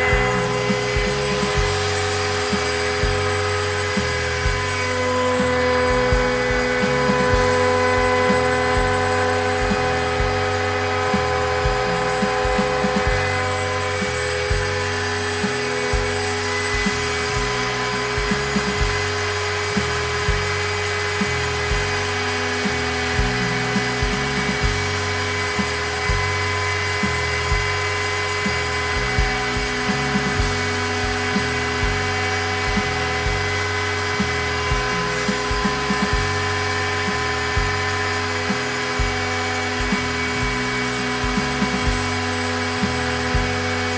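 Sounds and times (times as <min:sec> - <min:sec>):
background music with steady beat: 0:00.0 - 0:43.9
router spindle whine: 0:00.0 - 0:43.9.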